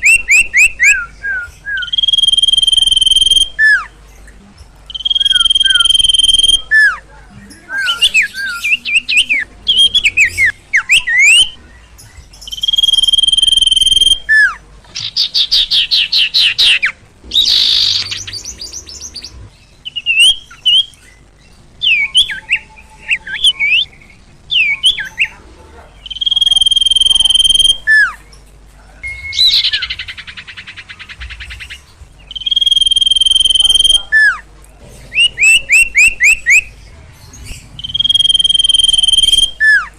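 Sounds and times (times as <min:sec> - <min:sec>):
bird long high whistles: 0:00.0 - 0:03.9, 0:04.9 - 0:07.0, 0:26.0 - 0:28.1, 0:32.3 - 0:34.3, 0:37.8 - 0:39.9
bird slurred chirps: 0:00.0 - 0:39.9.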